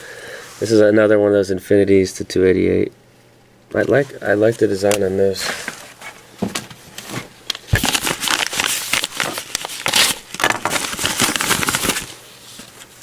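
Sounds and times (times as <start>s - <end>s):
packaging crinkling: 4.8s - 13.0s.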